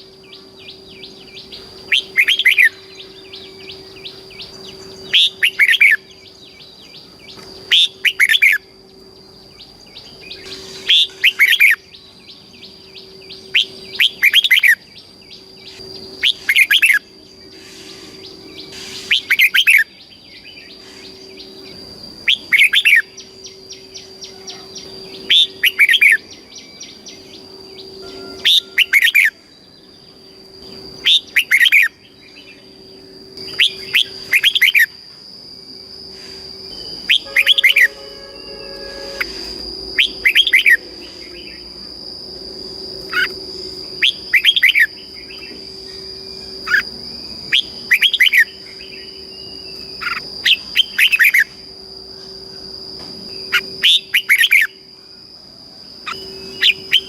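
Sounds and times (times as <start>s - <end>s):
bird warbling song: 0.0s - 34.9s, 36.6s - 41.8s, 43.0s - 51.5s, 56.0s - 57.0s
low hum: 0.0s - 50.8s
faint high tone: 28.0s - 29.1s, 37.2s - 39.7s.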